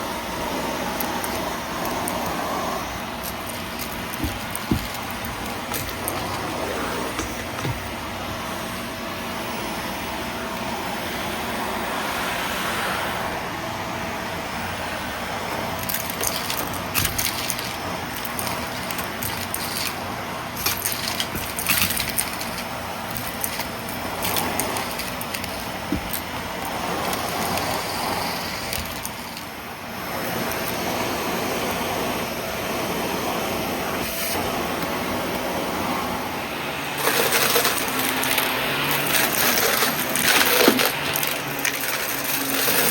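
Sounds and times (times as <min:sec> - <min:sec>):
vacuum cleaner running: 0:00.0 - 0:42.9
debris rattling in vacuum: 0:00.4 - 0:08.6, 0:15.5 - 0:31.0, 0:36.7 - 0:42.9.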